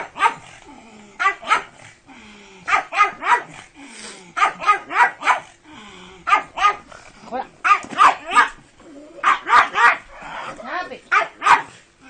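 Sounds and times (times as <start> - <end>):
dog barking: 0.0 - 0.5, 1.2 - 1.7, 2.7 - 3.6, 4.4 - 5.5, 6.3 - 6.8, 7.6 - 8.6, 9.2 - 10.5, 11.1 - 11.8.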